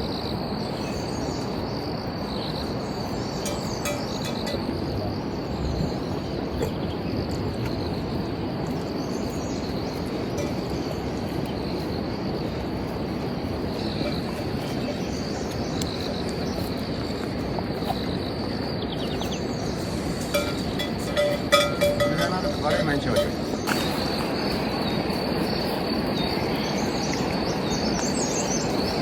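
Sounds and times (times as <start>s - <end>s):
insects trilling: 0.0s - 29.0s
outdoor noise wash: 0.0s - 29.0s.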